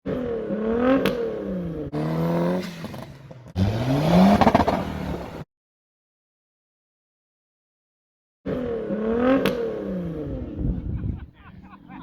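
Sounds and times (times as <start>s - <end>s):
car engines revving and accelerating: 0.0s - 5.5s, 8.5s - 11.2s.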